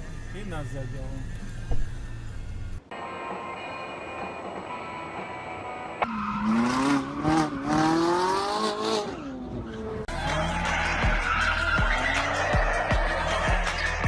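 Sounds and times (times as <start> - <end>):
steady in-car hum: 0.0 - 7.5, 9.4 - 14.0
car engine accelerating: 6.0 - 14.0.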